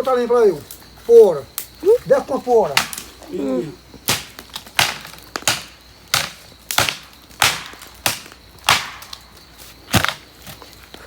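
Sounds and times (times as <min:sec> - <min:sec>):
blade chopping wood: 0:02.8 - 0:03.1, 0:04.1 - 0:09.3, 0:09.9 - 0:10.6.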